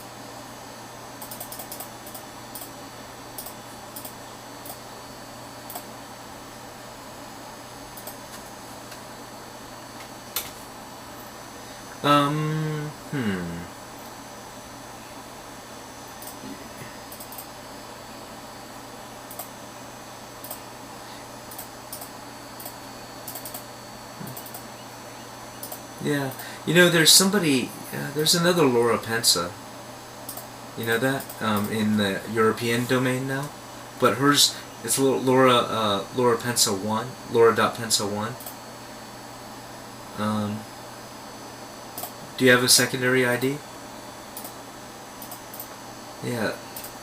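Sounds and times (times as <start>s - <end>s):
steady low hum: 0.0s - 47.0s
computer keyboard keys clicking: 1.2s - 2.7s, 3.4s - 4.8s, 17.1s - 17.5s, 23.3s - 23.7s, 24.3s - 24.6s
keyboard typing: 1.2s - 2.7s, 17.1s - 17.5s, 21.5s - 24.7s.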